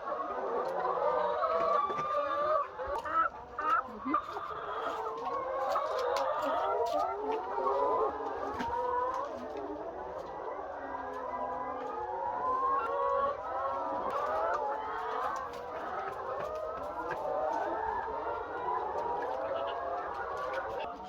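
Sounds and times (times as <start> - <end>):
hens clucking: 0.0 - 21.0.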